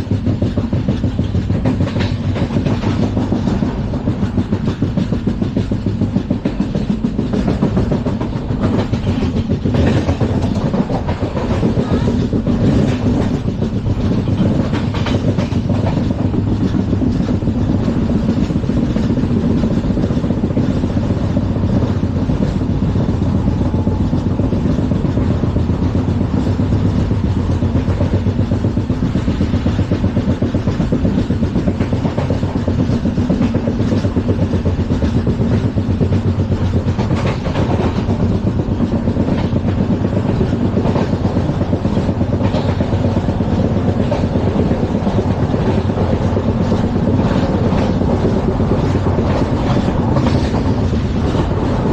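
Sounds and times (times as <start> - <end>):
train wheels rumbling on rail: 0.0 - 51.9.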